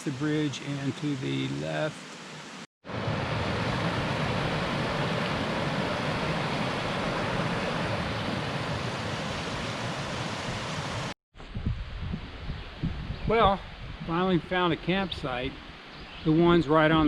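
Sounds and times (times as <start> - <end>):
creek water rushing: 0.0 - 11.2.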